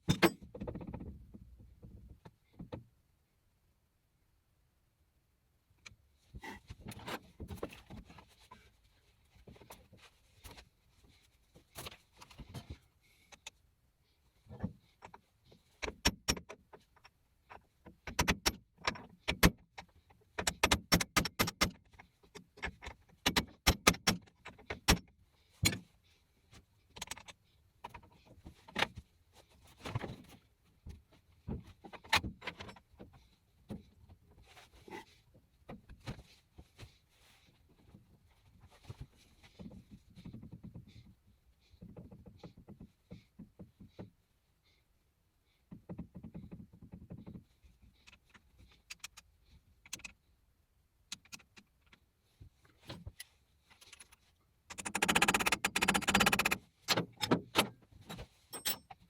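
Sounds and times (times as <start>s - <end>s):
metal tools clinking: 58.5s - 59.0s.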